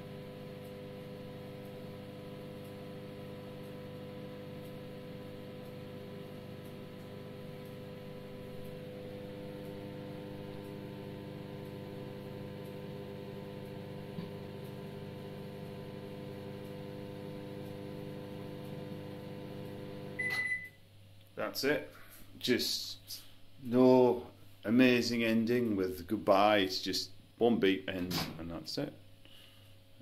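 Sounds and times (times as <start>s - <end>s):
microwave oven humming: 0.0s - 21.0s.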